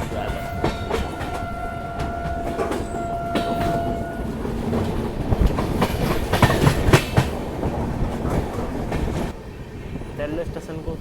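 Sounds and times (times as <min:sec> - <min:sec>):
train horn: 0:00.0 - 0:04.5
train wheels clacking on rails: 0:00.0 - 0:11.0.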